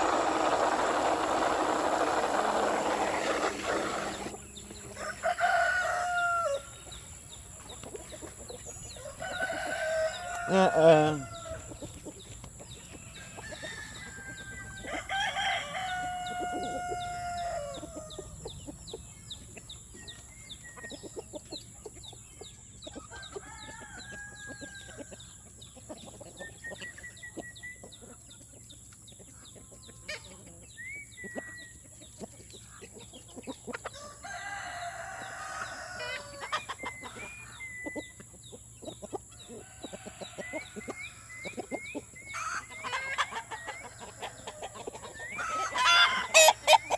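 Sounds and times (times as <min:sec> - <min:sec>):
chickens clucking and peeping: 0:00.0 - 0:46.9
rooster crowing: 0:04.9 - 0:06.7, 0:09.0 - 0:11.8, 0:13.1 - 0:18.2, 0:34.0 - 0:36.5.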